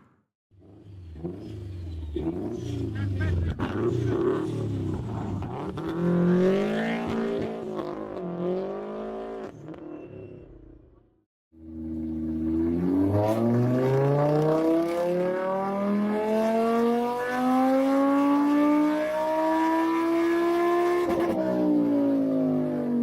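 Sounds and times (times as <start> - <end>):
car engine accelerating: 0.6 - 10.0, 11.6 - 23.0.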